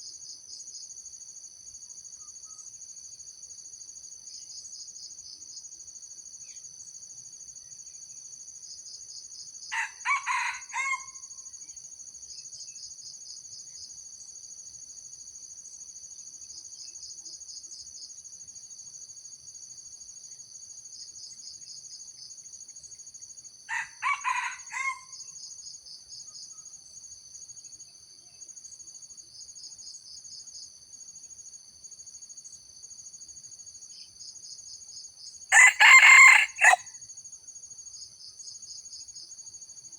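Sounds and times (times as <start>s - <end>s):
insect chorus with pulsing trill: 0.0s - 39.9s
rooster crowing: 9.8s - 11.2s, 23.7s - 25.1s, 35.5s - 36.9s.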